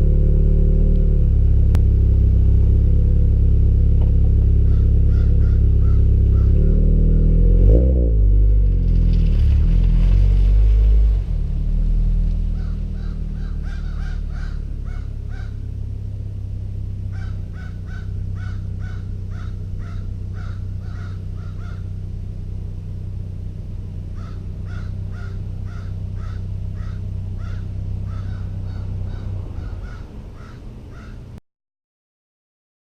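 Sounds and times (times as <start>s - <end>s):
car engine idling: 0.0s - 31.4s
crows cawing: 4.6s - 6.6s, 12.5s - 15.6s, 17.1s - 21.9s, 24.2s - 31.4s.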